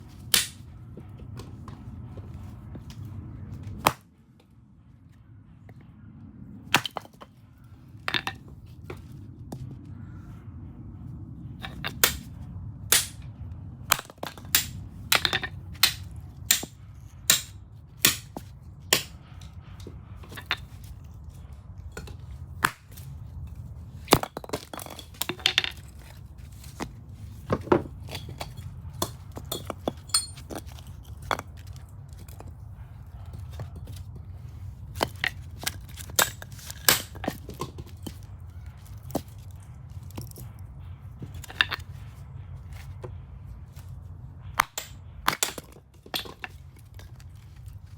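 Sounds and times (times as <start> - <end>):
firewood being struck and split: 0.3 - 0.6, 11.6 - 12.3, 12.9 - 13.2, 13.9 - 19.2, 22.6 - 23.0, 35.0 - 38.2, 44.6 - 46.5.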